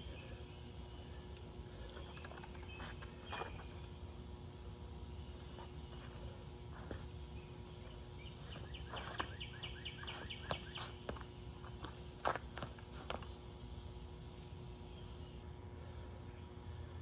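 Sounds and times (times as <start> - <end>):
faint steady hum: 0.0 - 17.0
bird chirping rapidly: 7.4 - 11.1
feet tapping on stone paving: 8.4 - 13.4.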